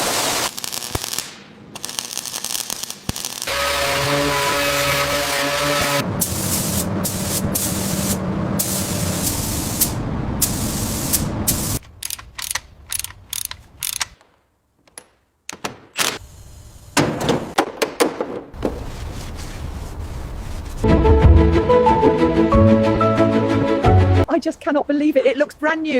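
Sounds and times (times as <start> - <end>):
steady hiss: 6.0 - 11.8
sharp clicks and knocks: 11.8 - 16.2.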